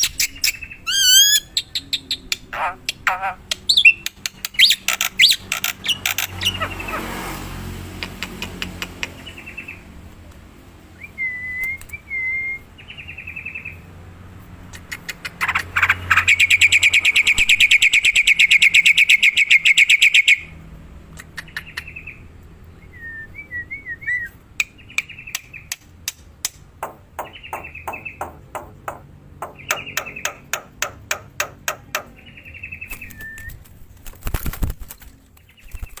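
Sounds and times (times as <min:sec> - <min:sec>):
myna chirps and whistles: 0:00.0 - 0:02.2
bird rapid clicks: 0:02.3 - 0:06.3, 0:14.7 - 0:15.7, 0:32.9 - 0:36.0.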